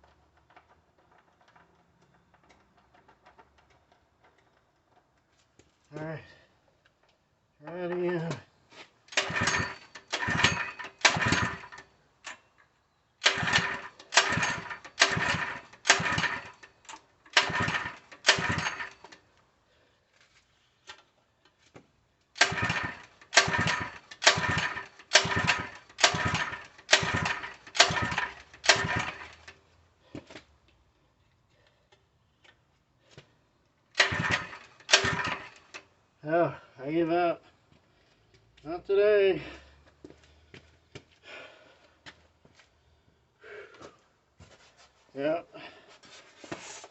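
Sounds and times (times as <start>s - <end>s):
engine cranked with pull-starter: 0.0s - 5.3s, 9.1s - 12.4s, 13.2s - 19.3s, 22.3s - 29.6s, 33.9s - 35.9s.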